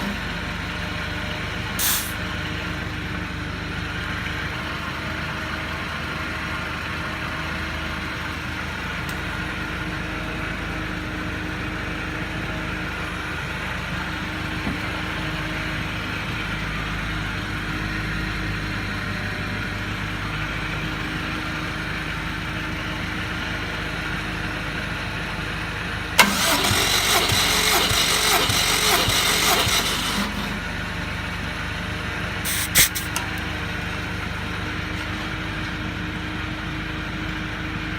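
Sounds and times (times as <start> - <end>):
steady mechanical hum: 0.0 - 37.9
engine cranking on starter: 1.7 - 2.4, 26.2 - 31.3, 32.5 - 33.6.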